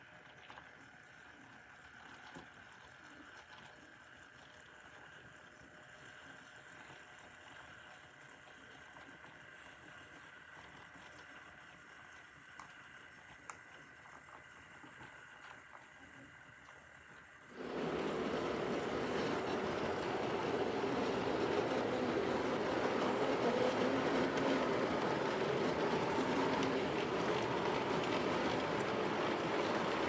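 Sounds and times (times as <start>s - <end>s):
model train motor hum: 17.6s - 30.0s.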